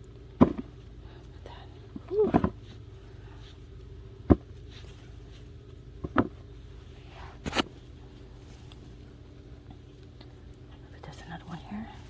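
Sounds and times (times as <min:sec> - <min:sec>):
steady low hum: 0:00.0 - 0:12.0
digging knocks and scrapes in soil: 0:00.3 - 0:09.9.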